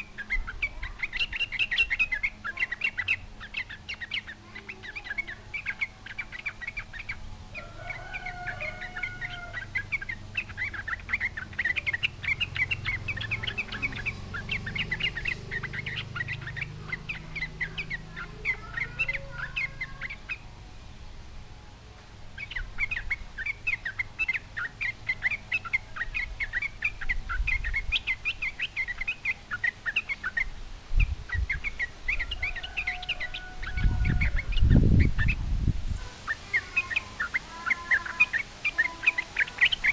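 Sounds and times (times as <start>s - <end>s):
bird singing bubbly chatter: 0.0s - 20.6s, 22.2s - 39.9s.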